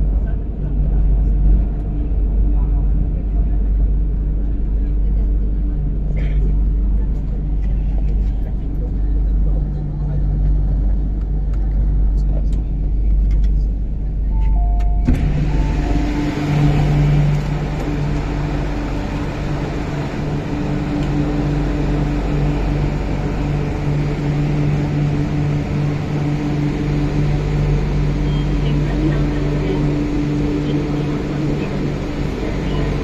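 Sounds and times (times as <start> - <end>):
train wheel and rail noise: 0.0 - 33.0
motor hum: 14.3 - 33.0.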